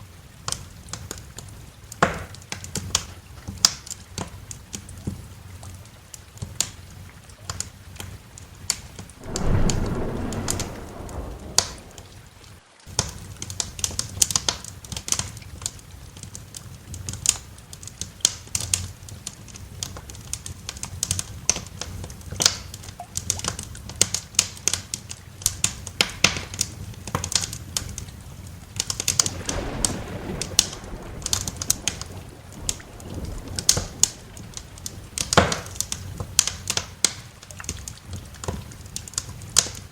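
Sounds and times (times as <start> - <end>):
wood fire crackling and popping: 9.2 - 12.3, 28.8 - 39.8
thunder rumble: 9.2 - 12.6, 29.0 - 37.4.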